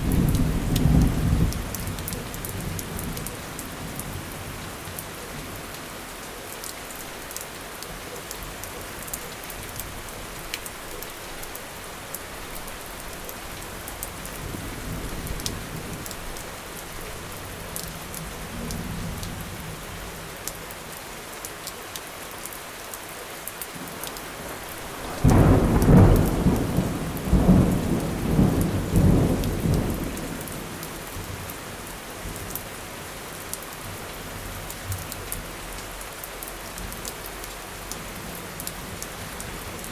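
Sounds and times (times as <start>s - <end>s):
steady rain: 0.0s - 39.9s
low thunder rumble: 24.5s - 30.7s
loud thunderclap: 24.8s - 30.4s.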